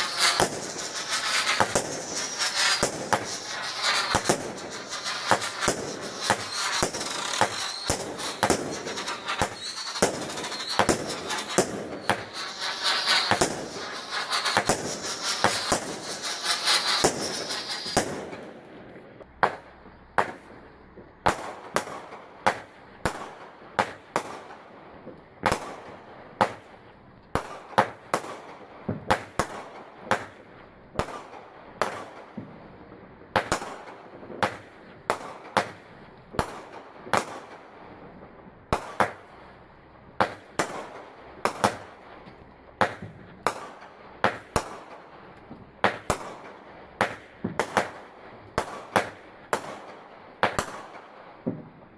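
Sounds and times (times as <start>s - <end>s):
fireworks bangs: 0.0s - 20.5s, 40.2s - 45.0s, 45.8s - 51.7s
fireworks crackling: 0.0s - 20.7s, 38.8s - 51.9s.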